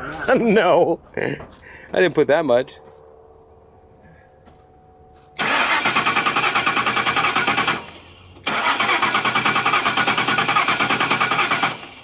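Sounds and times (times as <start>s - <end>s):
car engine cranking on starter: 5.4s - 12.0s.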